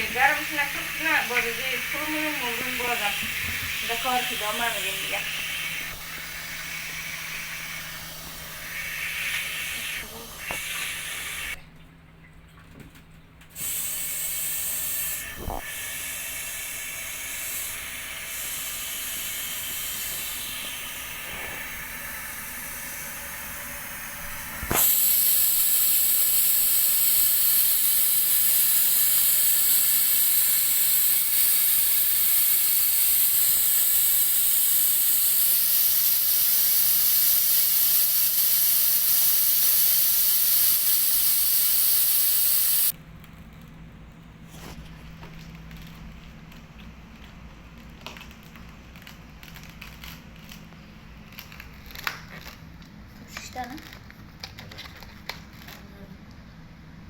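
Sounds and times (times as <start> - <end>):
water spraying hiss: 0.0 - 11.6, 13.6 - 43.0.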